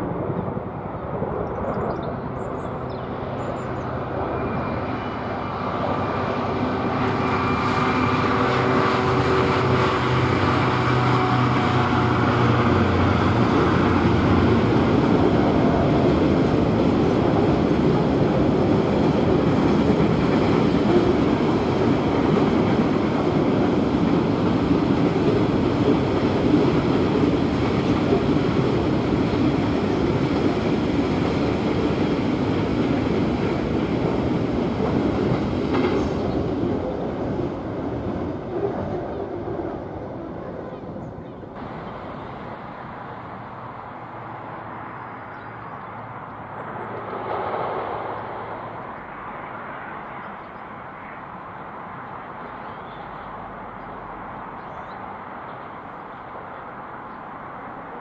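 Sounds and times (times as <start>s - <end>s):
diesel locomotive engine drone: 0.0s - 58.0s
train wheels running over rails: 3.4s - 40.4s.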